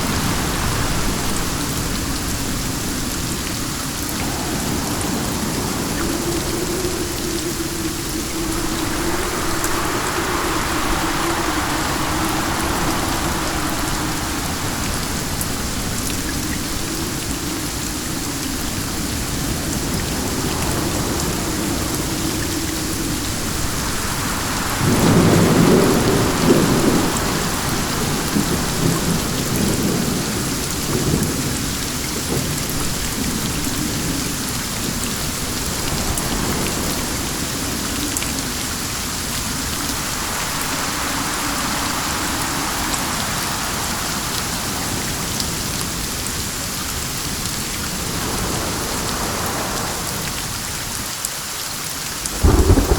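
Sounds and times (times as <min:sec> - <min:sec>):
steady rain falling: 0:00.0 - 0:52.9
thunder rolling: 0:04.1 - 0:31.6, 0:52.3 - 0:52.9.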